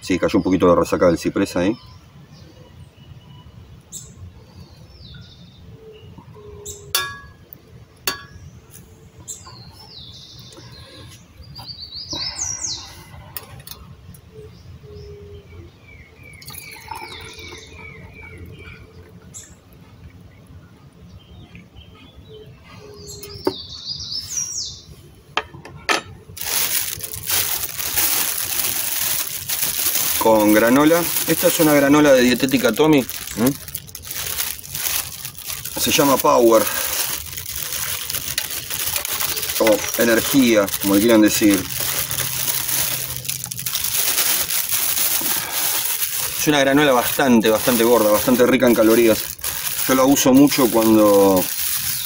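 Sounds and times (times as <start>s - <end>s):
small birds chirping: 0.0s - 25.4s, 26.4s - 52.0s
plastic bag crinkling: 26.4s - 52.0s.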